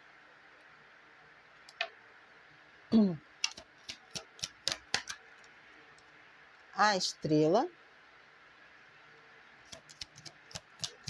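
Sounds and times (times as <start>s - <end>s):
cards clicking and tapping: 3.4s - 5.2s.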